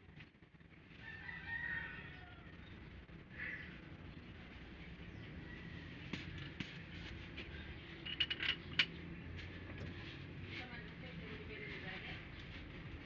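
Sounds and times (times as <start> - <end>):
small metal parts clinking: 8.0 - 8.9.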